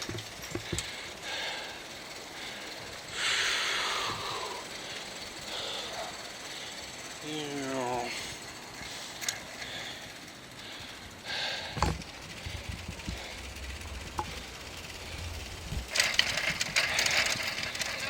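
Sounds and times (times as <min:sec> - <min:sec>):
rattling and clatter: 0:00.0 - 0:18.0
low rumble: 0:11.7 - 0:16.6.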